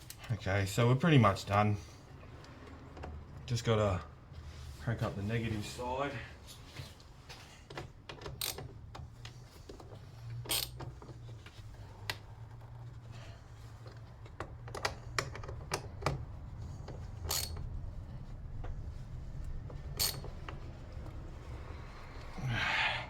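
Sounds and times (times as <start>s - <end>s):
steady low hum: 16.1s - 23.0s
hand tools clicking and clinking: 17.2s - 17.6s, 19.9s - 20.4s.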